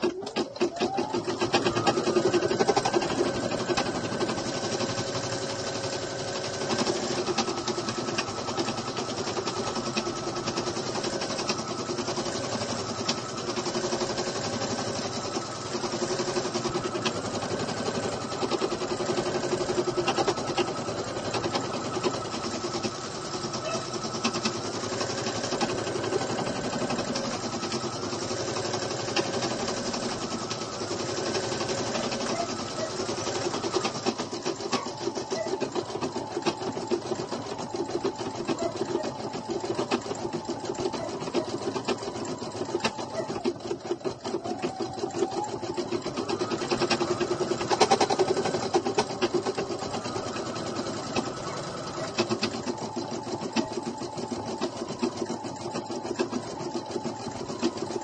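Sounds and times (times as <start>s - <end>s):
machine motor hum: 0.0s - 58.0s.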